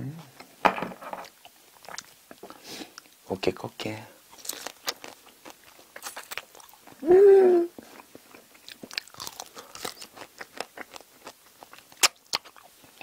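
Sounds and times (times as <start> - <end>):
wet chewing and crunching: 1.2 - 3.2, 4.3 - 7.0, 7.8 - 13.0.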